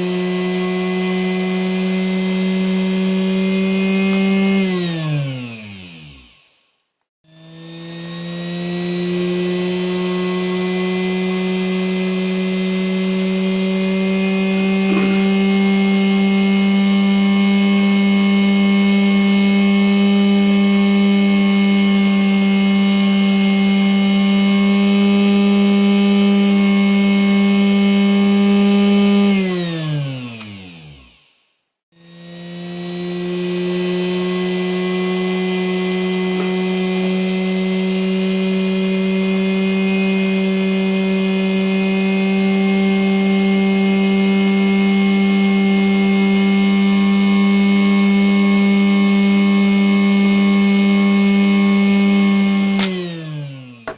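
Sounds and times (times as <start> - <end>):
sewing machine motor whining: 7.5 - 18.6.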